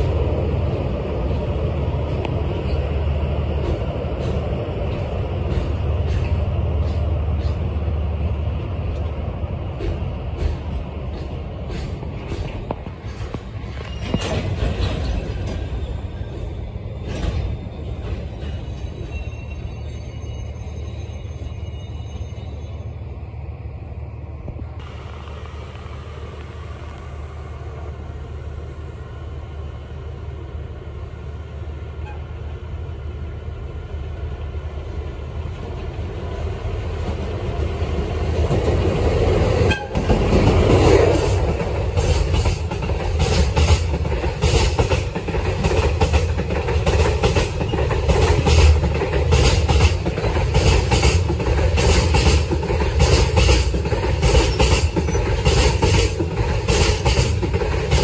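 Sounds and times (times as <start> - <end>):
wheels clattering over rail joints: 0.0 - 19.4, 38.3 - 58.0
diesel locomotive rumble: 0.0 - 58.0.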